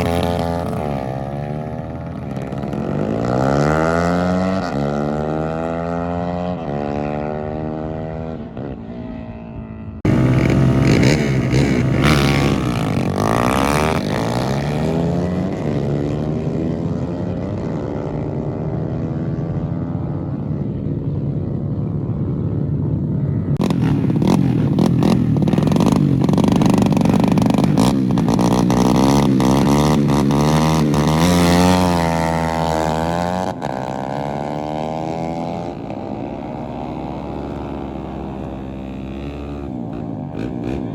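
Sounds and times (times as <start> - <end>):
motorcycle engines revving and passing: 0.0 - 40.9
engine crackles: 10.0 - 14.9, 23.5 - 34.5.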